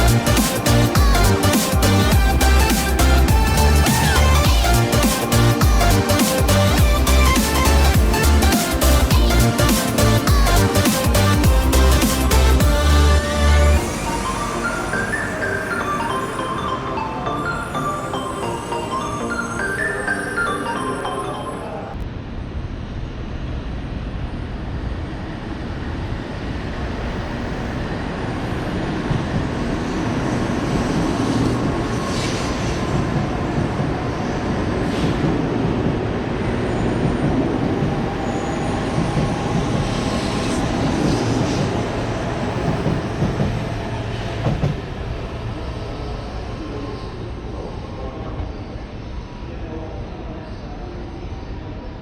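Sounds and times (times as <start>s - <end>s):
train rumbling along tracks: 23.1s - 52.0s.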